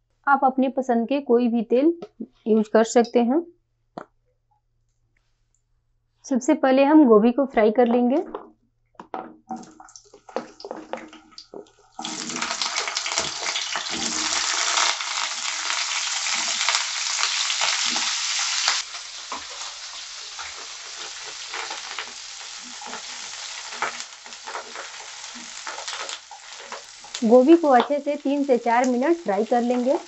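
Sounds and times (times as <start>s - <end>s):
wooden spatula stirring: 8.3s - 14.4s, 18.8s - 28.0s
vegetables sizzling in hot oil: 10.0s - 30.0s.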